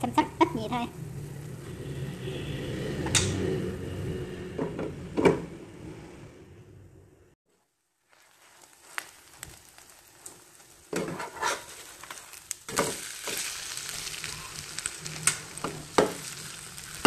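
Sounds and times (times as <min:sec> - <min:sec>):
batter frying in hot oil: 0:07.6 - 0:17.0.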